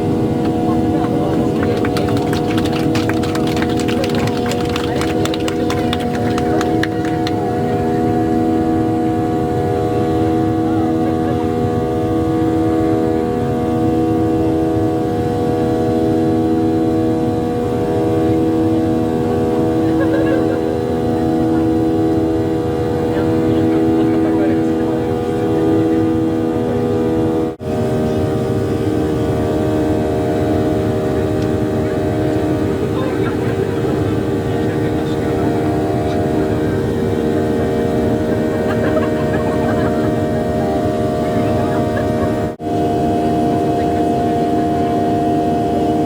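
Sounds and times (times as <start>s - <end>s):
jet engines droning in cabin: 0.0s - 46.0s.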